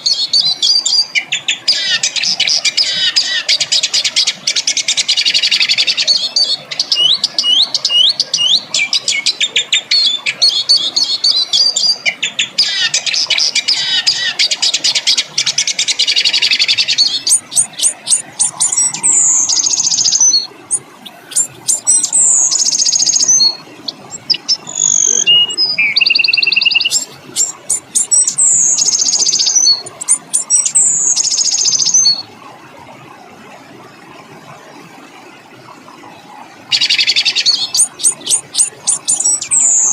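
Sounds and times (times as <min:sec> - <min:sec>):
harsh high bird calls: 0:12.3 - 0:32.2.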